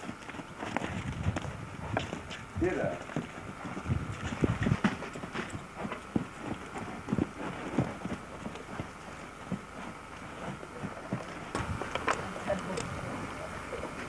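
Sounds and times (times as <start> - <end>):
horse hoofbeats: 0.0 - 14.0.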